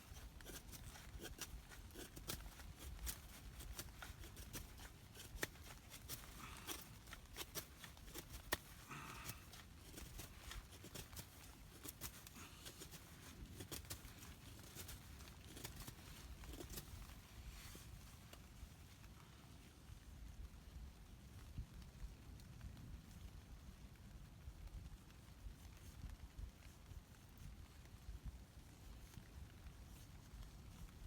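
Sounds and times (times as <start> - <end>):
knife scraping wood: 0.0 - 18.0.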